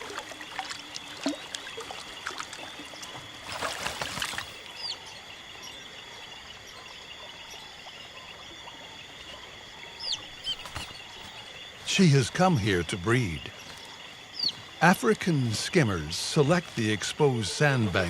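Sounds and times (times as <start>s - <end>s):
water splashing: 0.0s - 4.8s, 10.2s - 18.0s.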